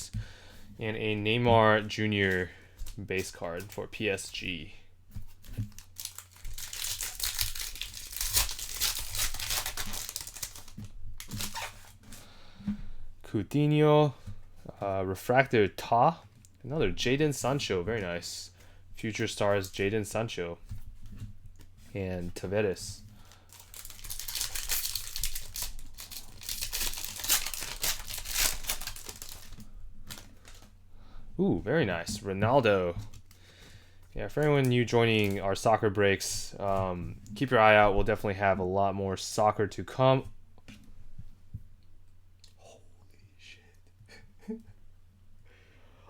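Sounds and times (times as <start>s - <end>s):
foil wrapper crinkling and tearing: 5.4s - 12.0s, 23.2s - 30.7s, 34.4s - 35.8s.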